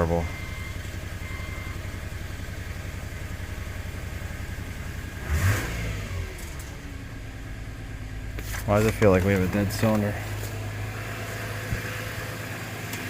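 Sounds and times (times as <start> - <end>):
engine revving: 5.0 - 7.2, 8.4 - 13.0
car engine idling roughly: 6.8 - 12.8.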